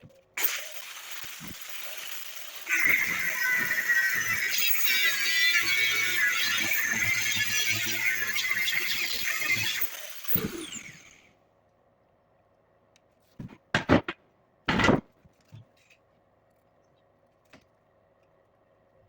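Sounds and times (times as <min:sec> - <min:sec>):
power tool spinning down: 0:00.4 - 0:11.3
knocks and clanks of workshop parts: 0:13.4 - 0:15.9.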